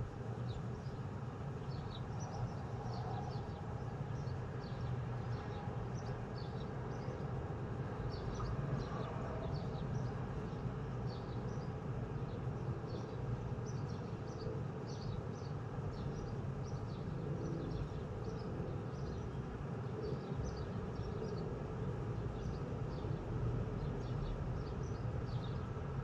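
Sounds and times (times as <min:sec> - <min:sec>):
small birds chirping: 0:08.1 - 0:25.9.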